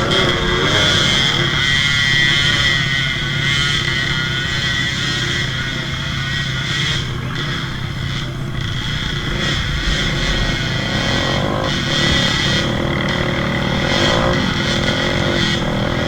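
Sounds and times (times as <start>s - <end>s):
high-pitched whine: 0.0s - 16.0s
motorcycle engines revving: 0.0s - 16.0s.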